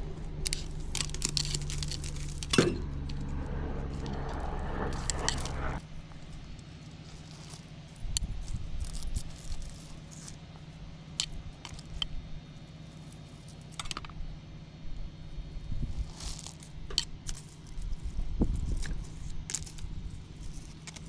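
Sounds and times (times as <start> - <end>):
weeds and brush rustling: 0.0 - 10.4, 16.0 - 21.0
steady low hum: 0.0 - 13.5.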